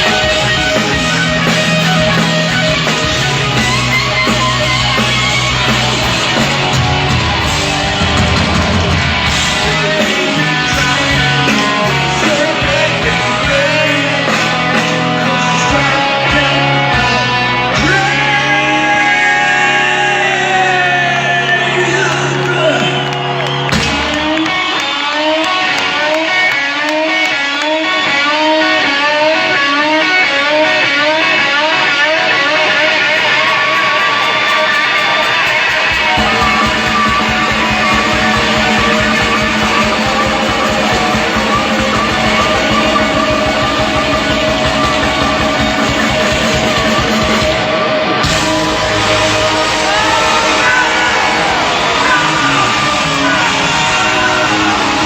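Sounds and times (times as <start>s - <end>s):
bass: 0.0s - 55.0s
drums: 0.0s - 55.0s
electric guitar riff with bent notes: 0.0s - 55.0s.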